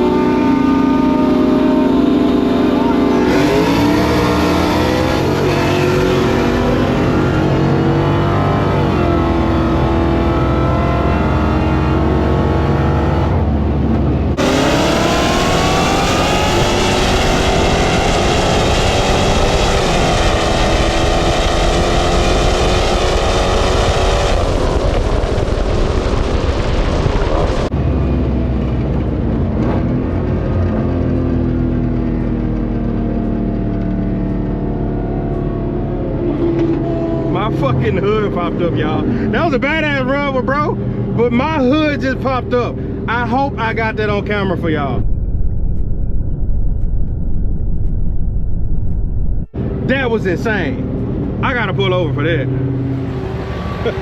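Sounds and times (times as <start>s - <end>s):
car engine at full throttle: 0.0s - 54.0s
loud rushing noise: 13.5s - 28.0s, 44.7s - 50.0s.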